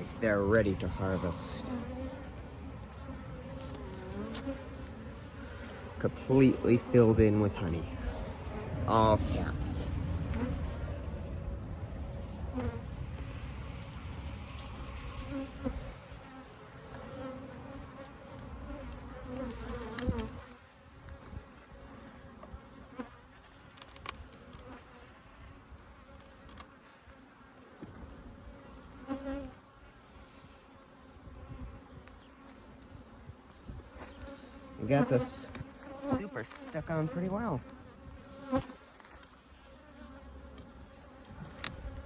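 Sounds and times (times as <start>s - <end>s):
honeybees buzzing: 0.0s - 42.0s.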